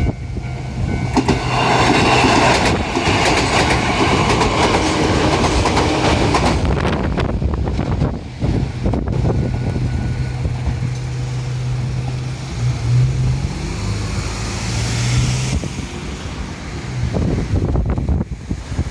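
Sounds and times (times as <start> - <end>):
road noise hiss: 0.0 - 18.9
vehicle humming past: 9.7 - 18.0.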